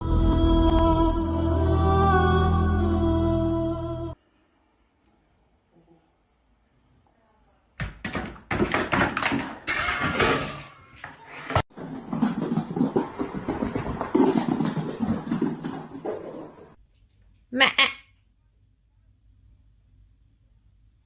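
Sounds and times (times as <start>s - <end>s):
knocks and thuds: 7.8s - 10.4s.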